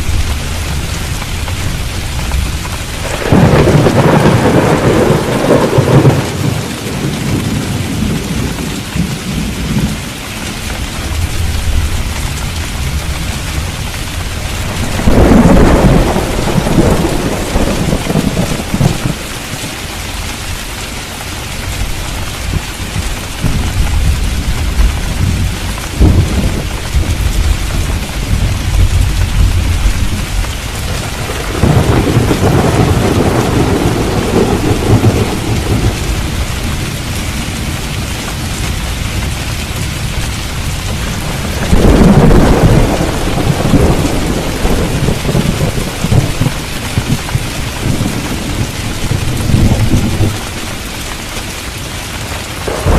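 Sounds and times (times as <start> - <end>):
rolling thunder: 0.0 - 10.1, 11.0 - 19.8, 21.9 - 50.8, 52.6 - 52.9
heavy rain falling: 0.0 - 52.9
sharp thunder crack: 3.0 - 7.0, 14.5 - 19.2, 25.1 - 36.8, 41.1 - 50.4, 52.7 - 52.9.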